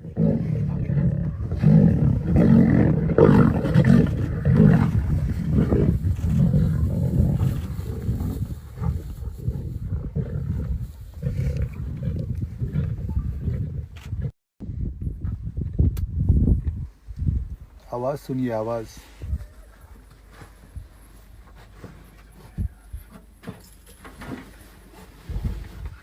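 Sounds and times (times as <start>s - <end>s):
lions growling roars: 0.0s - 14.3s.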